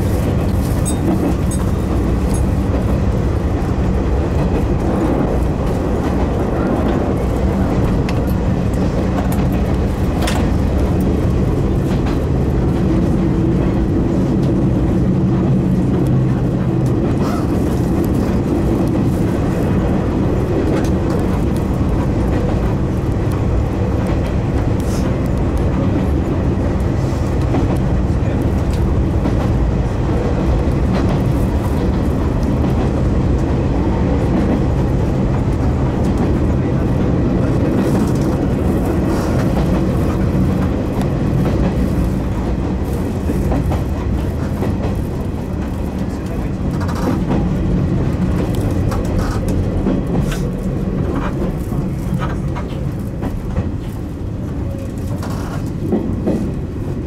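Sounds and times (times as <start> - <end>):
train wheels rumbling on rail: 0.0 - 57.0
wheels clicking over rail joints: 34.1 - 57.0.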